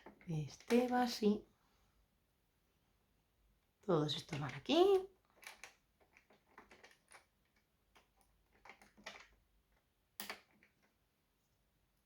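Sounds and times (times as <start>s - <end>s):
small plastic parts clicking: 4.2s - 11.0s.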